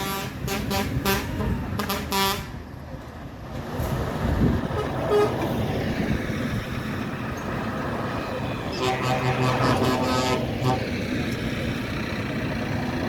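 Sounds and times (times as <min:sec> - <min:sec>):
passing engines rumbling: 0:00.0 - 0:13.0
vehicle horn short blasts: 0:08.8 - 0:10.8.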